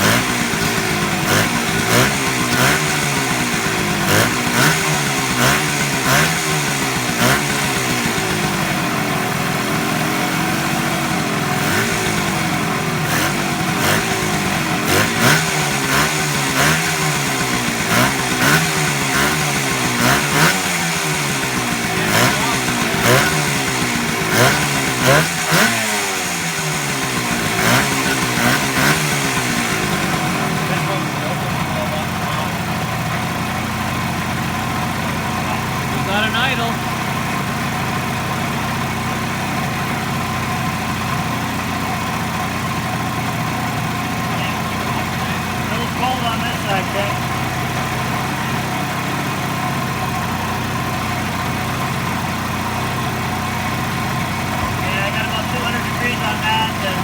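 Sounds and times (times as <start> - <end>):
two-stroke engine revving: 0.0 - 57.0
engine pops: 10.2 - 57.0.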